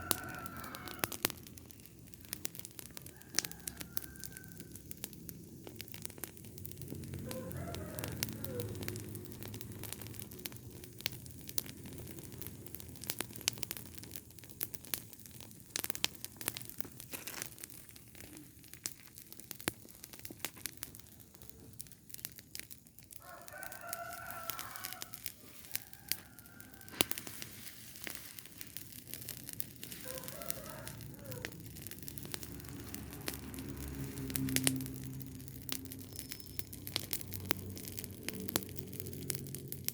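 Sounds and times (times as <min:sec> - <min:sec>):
rooster crowing: 0:00.0 - 0:01.3, 0:03.0 - 0:04.9, 0:07.2 - 0:09.0, 0:23.2 - 0:27.4, 0:29.9 - 0:34.5
fire crackling and popping: 0:00.0 - 0:39.9.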